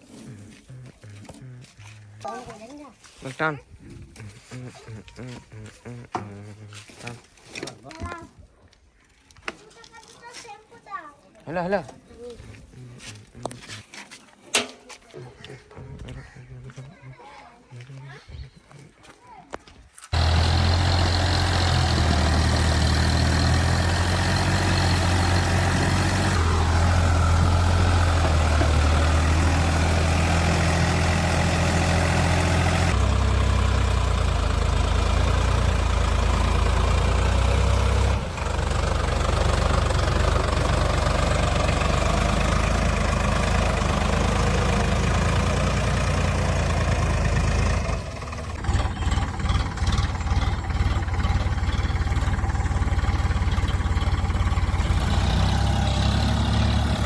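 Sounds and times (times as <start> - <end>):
tractor engine humming: 0.0 - 7.8, 20.1 - 57.0.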